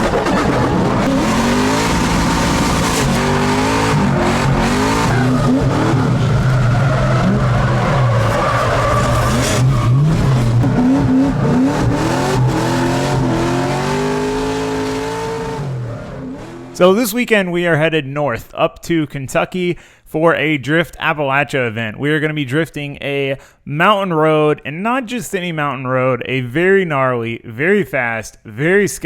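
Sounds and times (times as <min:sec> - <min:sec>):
car engine revving: 0:00.0 - 0:16.8
tyres squealing on pavement: 0:03.2 - 0:13.5.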